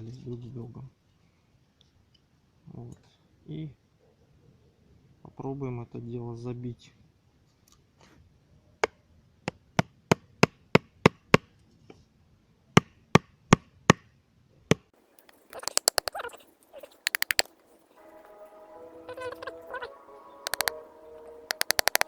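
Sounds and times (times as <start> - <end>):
rattles of clicks: 15.2 - 17.5, 20.5 - 20.8, 21.5 - 22.0
wooden mallet knocking: 15.5 - 16.2, 17.1 - 17.5, 20.5 - 20.7, 21.5 - 22.0.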